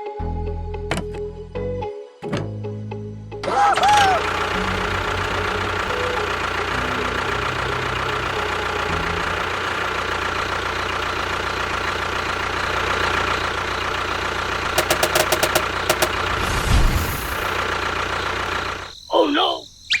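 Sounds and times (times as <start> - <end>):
engine running with rattle: 3.4 - 19.0
sharp clicks: 14.8 - 17.7.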